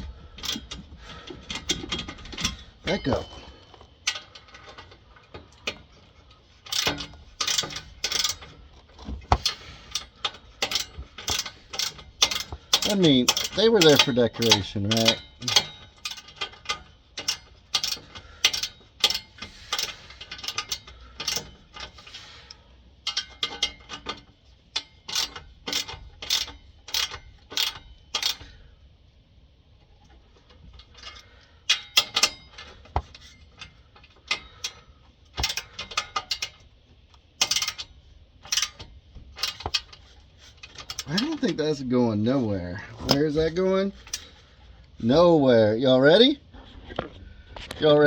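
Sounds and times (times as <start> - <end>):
ratchet wrench clicking: 6.6 - 8.6, 9.4 - 22.2, 23.0 - 28.6, 30.9 - 41.4.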